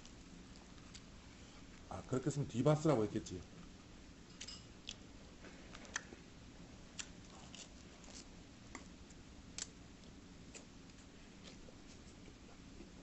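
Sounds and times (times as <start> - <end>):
person chewing food: 0.0 - 1.9, 4.4 - 6.3, 6.9 - 13.0.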